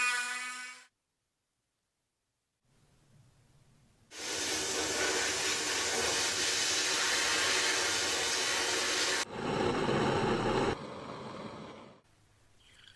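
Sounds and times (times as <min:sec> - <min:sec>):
compressed air hissing: 0:04.1 - 0:12.0.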